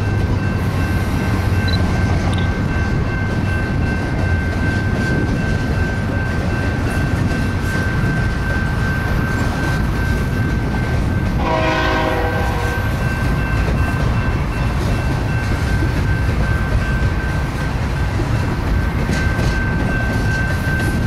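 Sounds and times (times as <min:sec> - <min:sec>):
freight trains rumbling: 0:00.0 - 0:21.0
train horn blast: 0:11.4 - 0:13.0.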